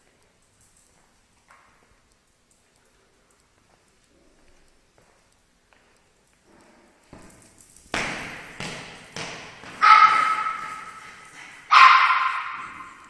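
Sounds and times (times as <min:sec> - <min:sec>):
dog barking: 0:09.8 - 0:13.0.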